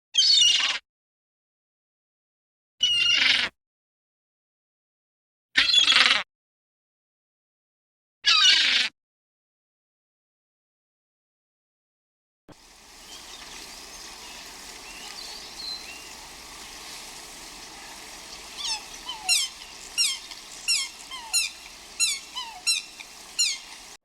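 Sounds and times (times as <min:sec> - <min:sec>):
bird sharp falling calls: 0:12.6 - 0:24.0
faint bird chirps: 0:12.6 - 0:24.0.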